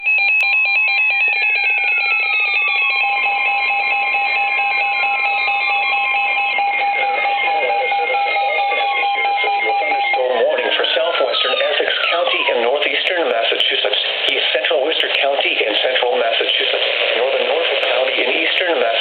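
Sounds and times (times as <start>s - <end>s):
pulsing electronic alarm tones: 0.0s - 14.3s.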